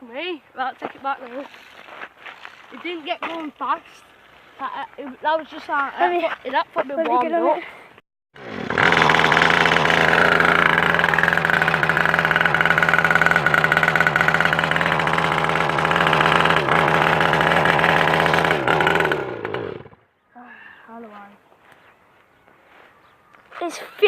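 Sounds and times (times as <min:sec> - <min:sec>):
small motorbike engine running: 0:08.4 - 0:20.0.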